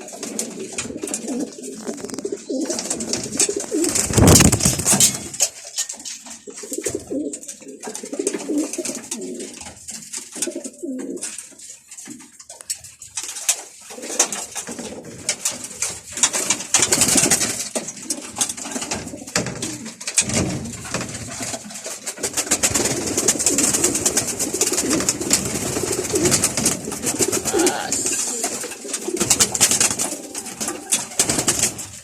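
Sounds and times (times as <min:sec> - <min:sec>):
pigeons cooing: 0:00.0 - 0:05.4, 0:06.4 - 0:09.6, 0:10.3 - 0:11.4, 0:22.3 - 0:32.0
clicks and rustles: 0:00.0 - 0:32.0.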